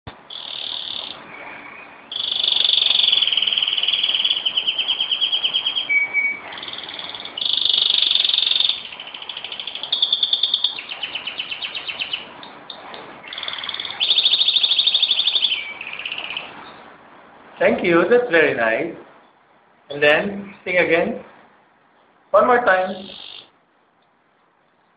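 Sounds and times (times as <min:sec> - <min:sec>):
canary singing with trills: 0:00.1 - 0:16.9, 0:22.4 - 0:23.6.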